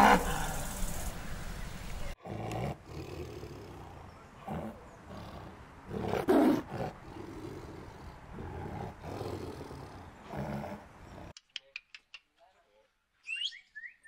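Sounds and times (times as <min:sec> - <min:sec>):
tiger roaring: 0:00.0 - 0:01.1, 0:02.2 - 0:11.3.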